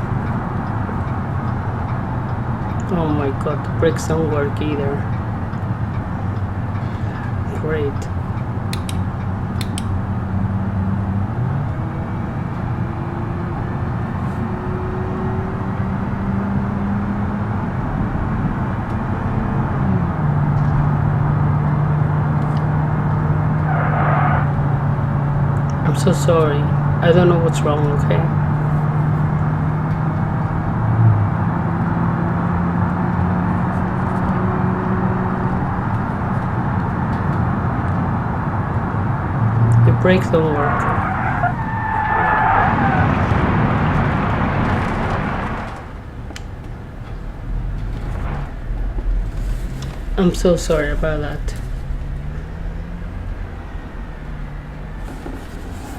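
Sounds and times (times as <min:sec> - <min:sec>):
minivan engine humming: 0:00.0 - 0:55.9
sharp click: 0:08.7 - 0:10.0.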